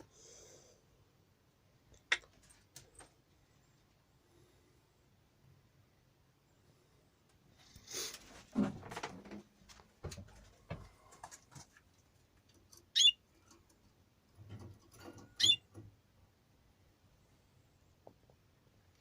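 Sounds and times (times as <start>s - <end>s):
finch chirps: 12.9s - 13.2s, 15.4s - 15.7s.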